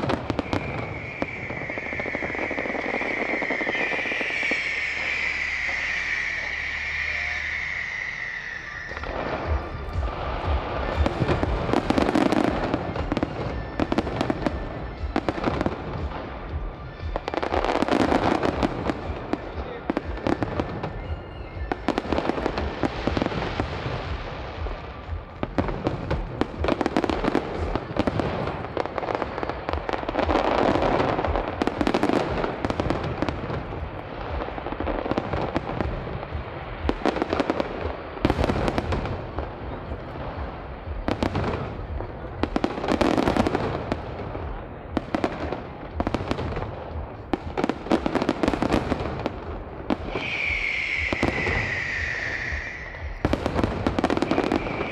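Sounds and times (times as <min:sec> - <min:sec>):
fireworks bangs and crackling: 0:00.0 - 0:54.9.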